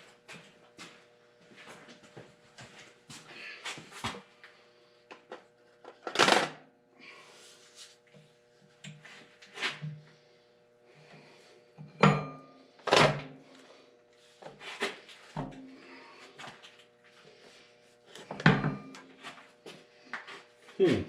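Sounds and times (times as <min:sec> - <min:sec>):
faint steady hum: 0:06.6 - 0:21.0.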